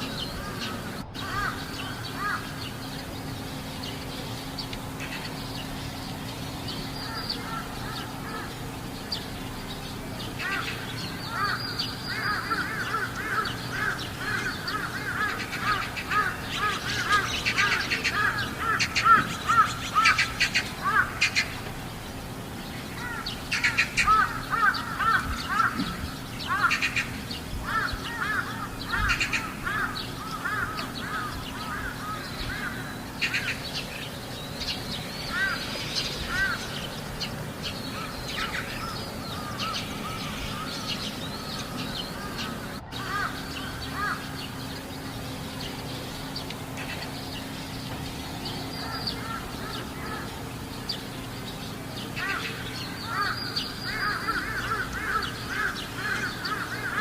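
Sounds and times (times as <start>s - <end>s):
crows cawing: 0.0s - 2.9s, 7.0s - 8.8s, 10.3s - 21.6s, 22.9s - 34.0s, 34.6s - 44.8s, 48.6s - 50.6s, 52.0s - 57.0s
steady low hum: 0.0s - 57.0s.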